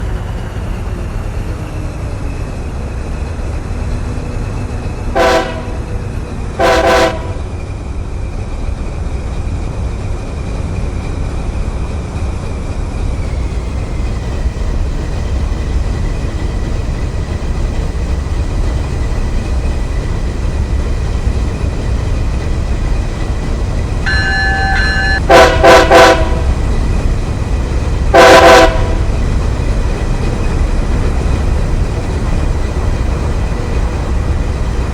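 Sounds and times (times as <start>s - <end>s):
moving train rumble: 0.0s - 34.9s
train horn blasts: 5.2s - 5.9s, 6.6s - 7.5s, 24.1s - 26.6s, 28.1s - 29.1s.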